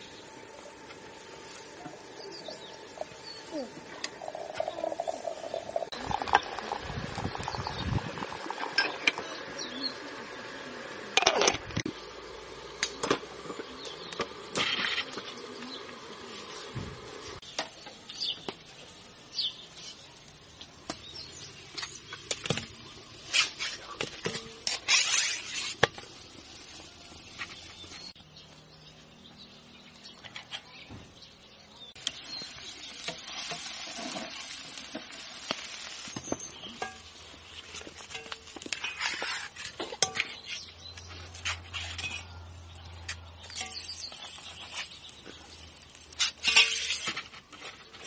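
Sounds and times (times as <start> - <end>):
food rustling and hissing: 0.1 - 11.2, 11.9 - 17.5, 22.8 - 28.2, 32.0 - 39.9.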